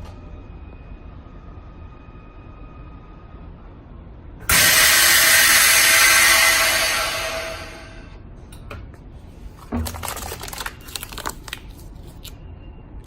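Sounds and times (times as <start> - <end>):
loud hiss of rushing air: 4.5 - 8.1
vacuum machine humming: 4.5 - 8.1.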